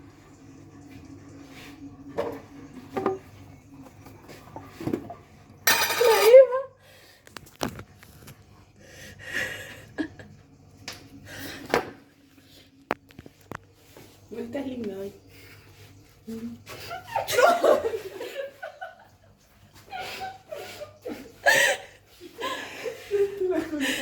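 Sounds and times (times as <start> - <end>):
utensils and bowls clinking: 4.0 - 6.6.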